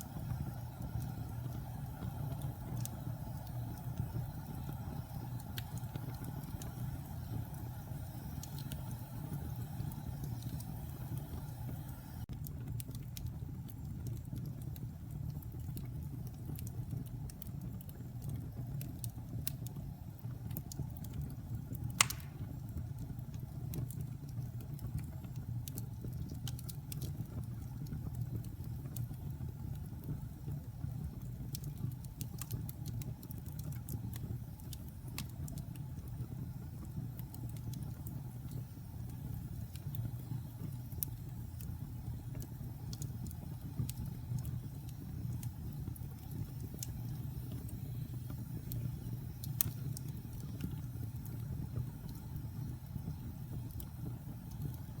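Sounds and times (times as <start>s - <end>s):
fireplace fire crackling: 0.0s - 55.0s
loud pop of fire: 22.0s - 22.6s.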